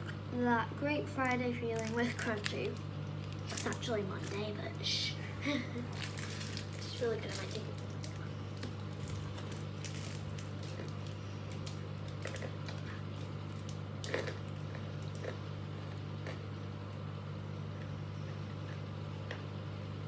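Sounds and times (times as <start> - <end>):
steady low hum: 0.0 - 20.0
chocolate bar crunching: 1.8 - 4.9, 5.6 - 16.6.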